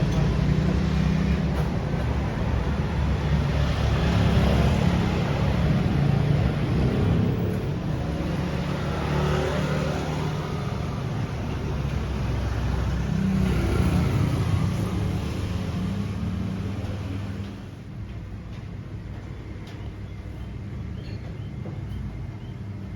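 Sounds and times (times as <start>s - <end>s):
vehicle engines passing: 0.0s - 18.0s.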